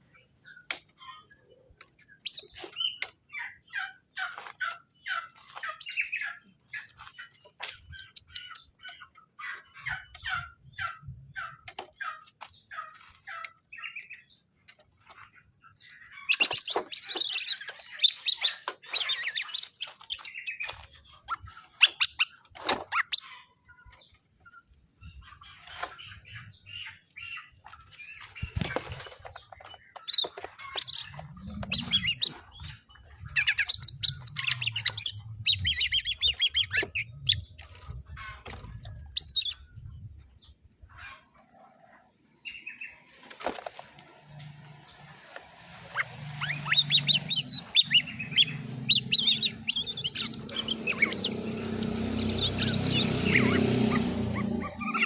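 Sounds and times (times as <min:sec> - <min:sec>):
birds chirping and trilling: 0:00.0 - 0:55.0.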